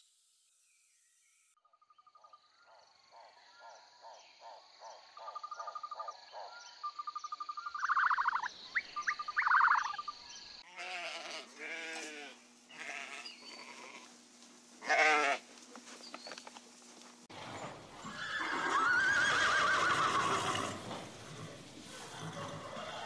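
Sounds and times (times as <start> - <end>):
chirping calls: 5.0 - 10.6
high-pitched insect drone: 7.0 - 10.6
sheep bleating: 10.6 - 14.1, 14.8 - 15.4.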